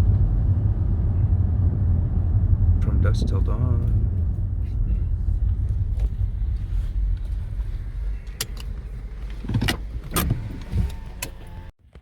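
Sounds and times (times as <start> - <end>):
engine and road rumble: 0.0 - 12.0
sharp clicks and clunks: 8.2 - 12.0.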